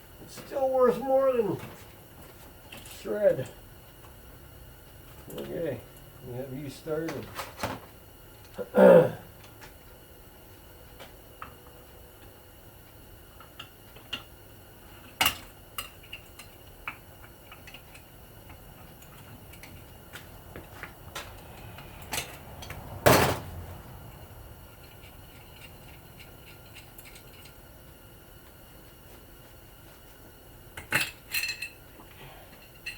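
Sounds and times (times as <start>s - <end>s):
rough metal clank: 23.0s - 23.5s
hand tools clinking on metal: 30.9s - 31.8s.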